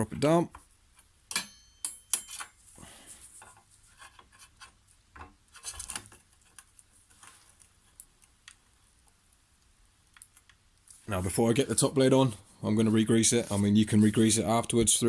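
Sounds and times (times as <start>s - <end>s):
metal blade clinking and scraping: 1.3s - 2.6s.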